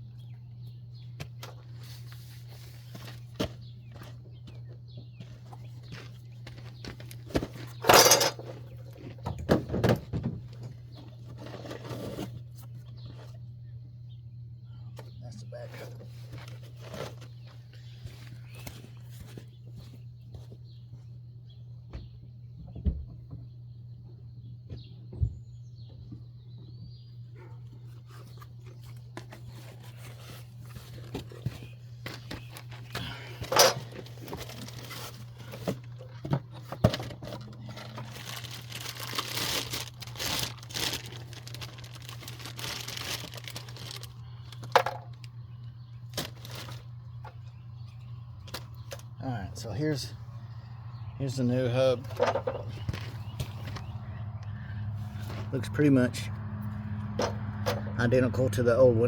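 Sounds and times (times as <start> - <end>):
steady low hum: 0.0 - 59.0
packaging rustling and tearing: 33.8 - 36.0, 37.0 - 44.7, 46.1 - 46.9
handling clicks and knocks: 52.0 - 53.9.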